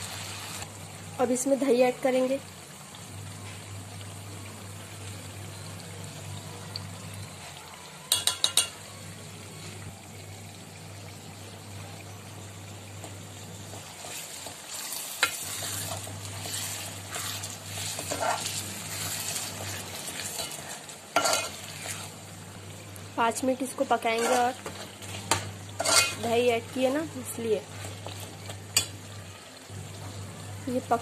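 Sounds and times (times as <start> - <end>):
meat sizzling in pot: 0.0 - 31.0
metal ladle scraping pot: 14.0 - 22.2, 24.1 - 26.3.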